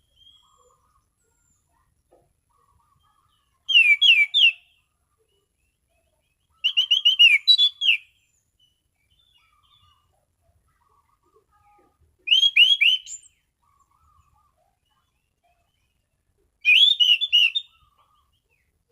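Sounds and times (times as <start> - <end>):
thrush singing whistled notes: 3.6 - 4.8, 6.5 - 9.9, 12.3 - 13.4, 16.6 - 18.3.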